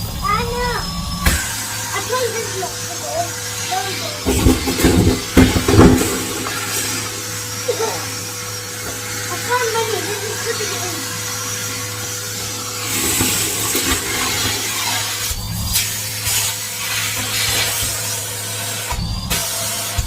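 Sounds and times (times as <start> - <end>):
vacuum cleaner humming: 0.0 - 20.0
vacuum nozzle scraping a surface: 1.4 - 20.0.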